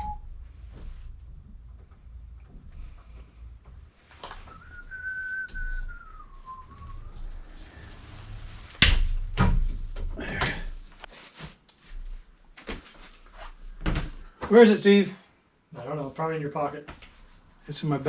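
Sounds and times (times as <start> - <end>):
person whistling: 0.0 - 1.4, 2.1 - 8.4.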